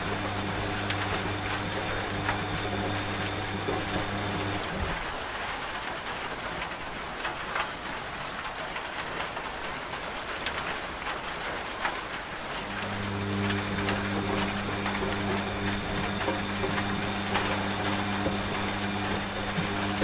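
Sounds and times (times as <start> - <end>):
washing machine humming: 0.0 - 5.4, 12.5 - 20.0
steady rain: 0.0 - 20.0.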